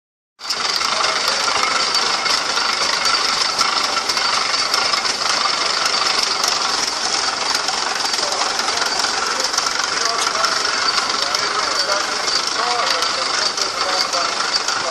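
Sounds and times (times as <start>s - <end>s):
engine clicks and knocks: 0.4s - 14.9s
steam engine hissing: 0.5s - 14.9s.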